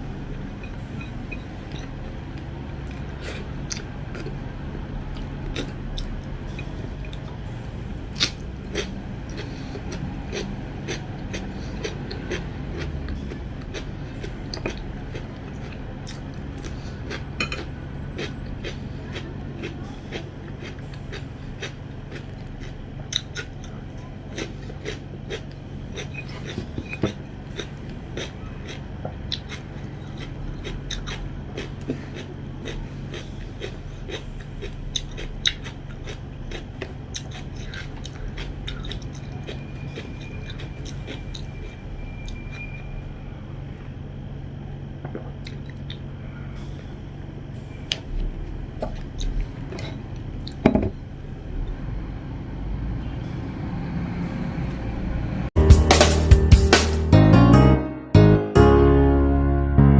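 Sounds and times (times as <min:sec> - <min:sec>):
steady low hum: 0:00.0 - 0:57.2
person chewing food: 0:00.6 - 0:04.4, 0:05.0 - 0:07.4, 0:08.0 - 0:42.8, 0:47.8 - 0:50.6.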